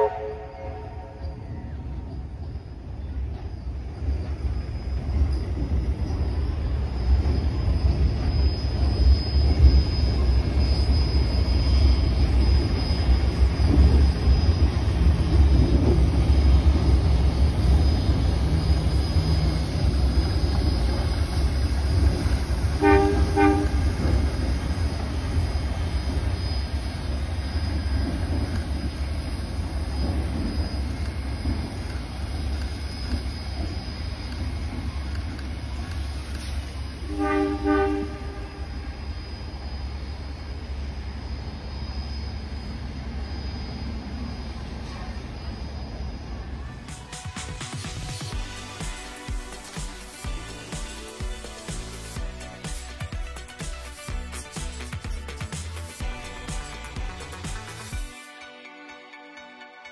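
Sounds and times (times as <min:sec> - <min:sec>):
train horn toot: 0:00.0 - 0:01.4, 0:22.7 - 0:24.2, 0:37.0 - 0:39.0
train rumbling across bridge: 0:00.0 - 0:58.2.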